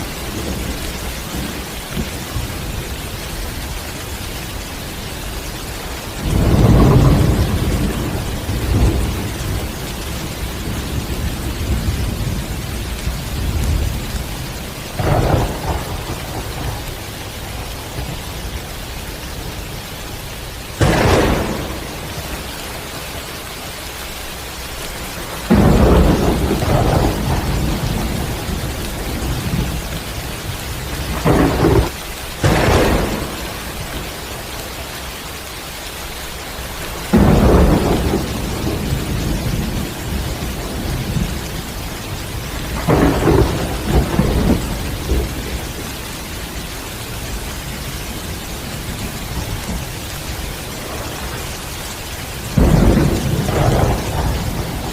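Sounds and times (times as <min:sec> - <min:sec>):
steady rain: 0:00.0 - 0:54.9
thunder claps and rumbles: 0:00.0 - 0:54.9.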